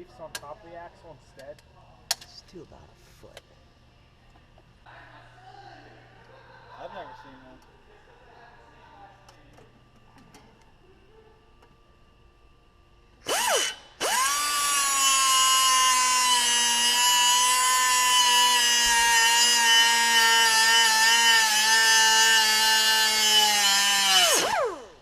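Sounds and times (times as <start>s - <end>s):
electric grinder cutting metal: 13.3s - 25.0s.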